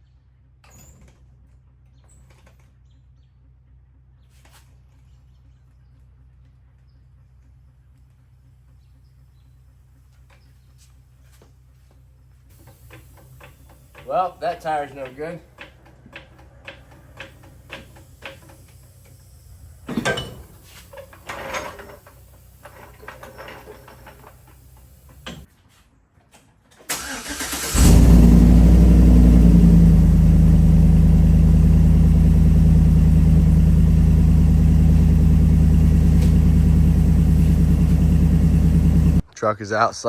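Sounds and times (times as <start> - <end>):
engine starter cranking: 26.9 - 29.4
pickup engine idling: 27.0 - 39.2.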